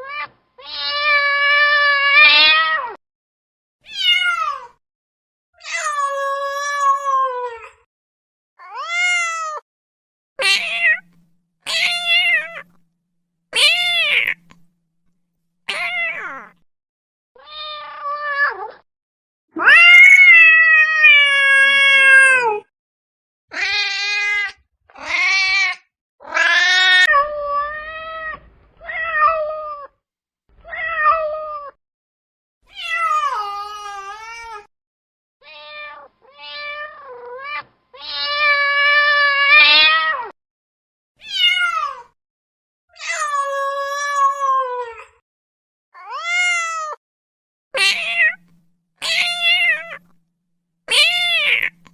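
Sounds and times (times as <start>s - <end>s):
cat meowing: 0.0s - 3.0s, 3.9s - 4.8s, 8.6s - 9.6s, 10.4s - 12.8s, 13.6s - 14.7s, 15.7s - 16.6s, 17.4s - 18.8s, 19.6s - 22.7s, 23.5s - 30.0s, 32.7s - 34.7s, 35.4s - 40.3s, 41.2s - 42.2s, 46.0s - 47.0s, 47.8s - 50.2s, 50.9s - 51.9s.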